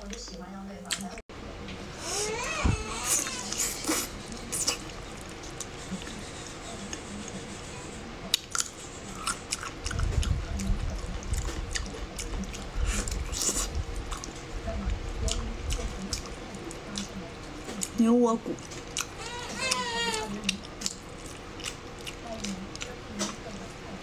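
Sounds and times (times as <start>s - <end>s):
mouth chewing meat: 8.3s - 14.4s, 15.3s - 23.8s
low thuds and rumble: 9.9s - 12.0s, 13.6s - 16.0s.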